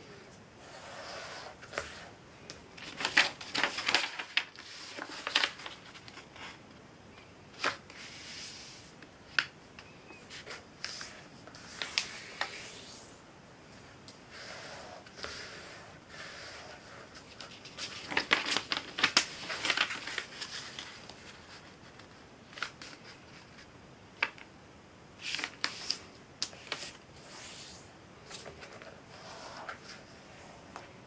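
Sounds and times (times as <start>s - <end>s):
paper rustling and crackling: 1.6s - 6.6s, 10.2s - 13.0s, 16.7s - 24.5s, 25.2s - 30.9s.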